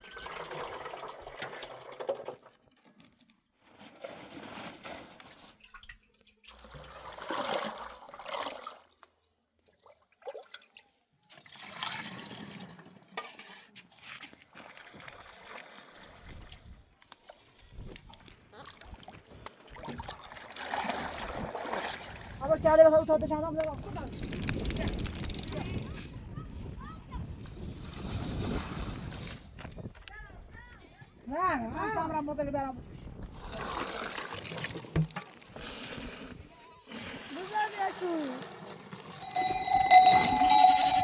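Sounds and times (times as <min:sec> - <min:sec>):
liquid pouring and trickling: 0:00.0 - 0:03.1, 0:05.5 - 0:09.0.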